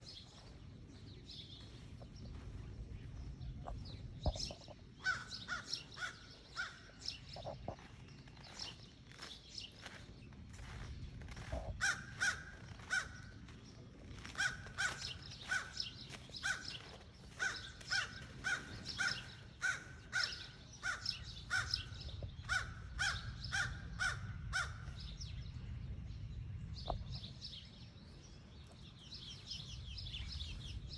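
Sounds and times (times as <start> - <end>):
small birds chirping: 0.0 - 30.9
crow cawing: 5.0 - 6.9, 11.8 - 13.3, 14.2 - 21.9, 22.5 - 24.9.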